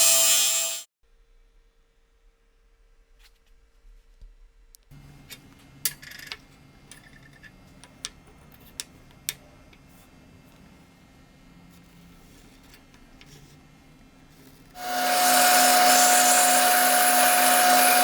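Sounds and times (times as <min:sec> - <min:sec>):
small tools clicking and tapping: 0:05.2 - 0:09.9.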